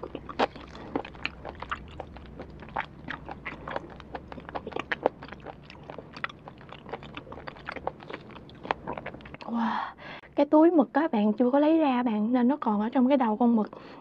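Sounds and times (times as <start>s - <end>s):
chewing food with wet crunches: 0.0s - 9.5s.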